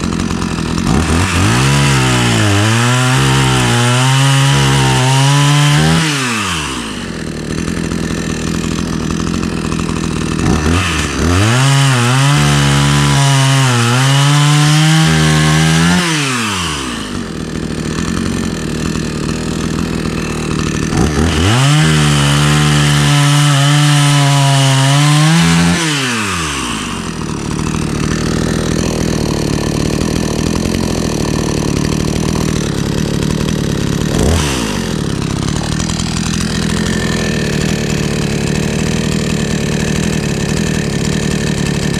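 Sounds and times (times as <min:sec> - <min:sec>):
chainsaw revving and idling: 0:00.0 - 0:41.9.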